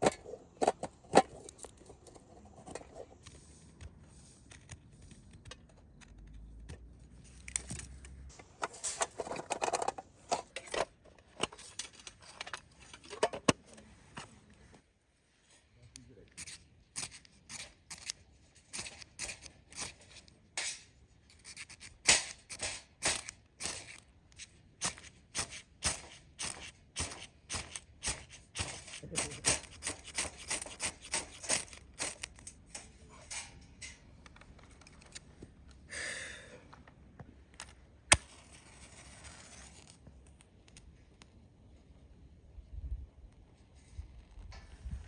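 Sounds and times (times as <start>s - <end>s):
hand saw cutting wood: 25.4s - 32.2s.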